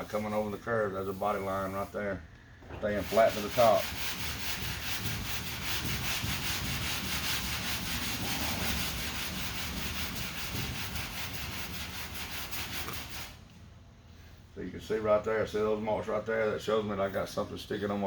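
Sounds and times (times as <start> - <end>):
sandpaper rubbing on panel: 0.0 - 1.9, 2.8 - 13.4.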